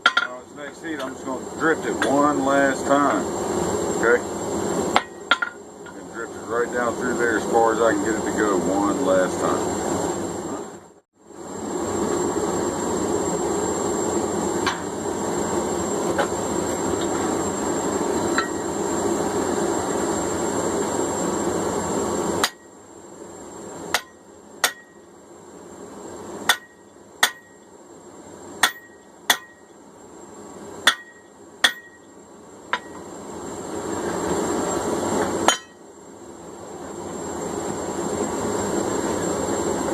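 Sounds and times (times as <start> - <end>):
hammer blows on hot steel: 0.0 - 9.6, 22.3 - 22.7, 23.9 - 25.1, 26.4 - 27.7, 28.6 - 29.8, 30.8 - 33.1, 35.2 - 35.9.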